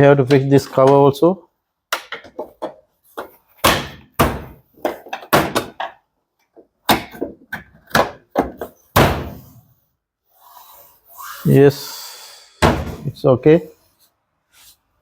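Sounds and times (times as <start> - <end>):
panel knocks and thuds: 3.6 - 6.0, 6.8 - 9.5, 12.6 - 13.1.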